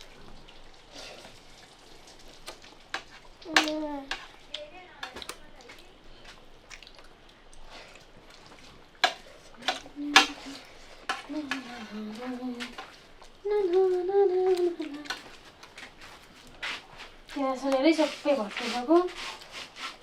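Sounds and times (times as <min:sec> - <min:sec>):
person humming: 0:11.3 - 0:12.8, 0:13.4 - 0:15.2.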